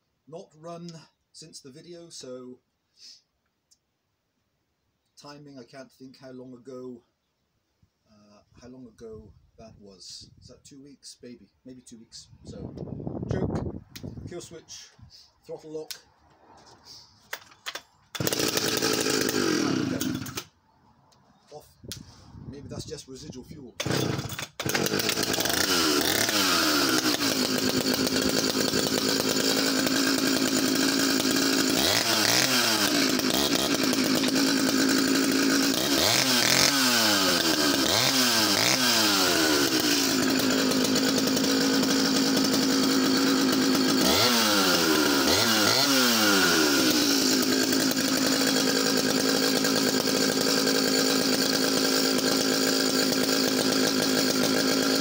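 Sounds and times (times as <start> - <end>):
chainsaw engine revving: 16.5 - 20.6, 23.7 - 55.0.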